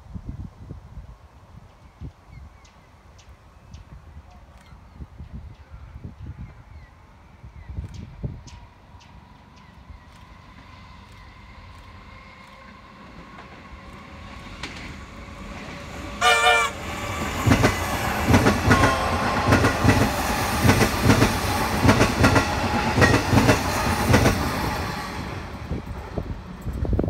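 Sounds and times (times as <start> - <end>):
train horn blast: 16.2 - 17.1, 18.6 - 19.6
train wheels clattering: 17.1 - 24.8.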